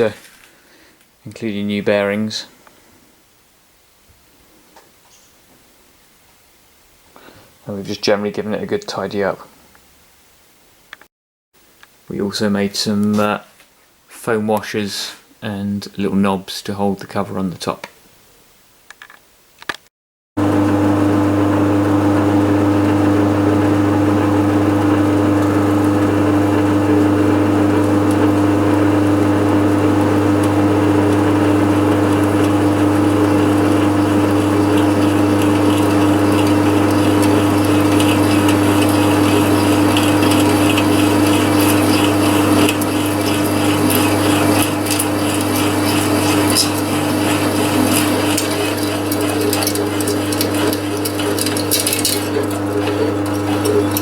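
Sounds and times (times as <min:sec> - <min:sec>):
pillar drill humming: 0:20.4 - 0:54.0
rapid crackling scraping noise: 0:27.1 - 0:54.0.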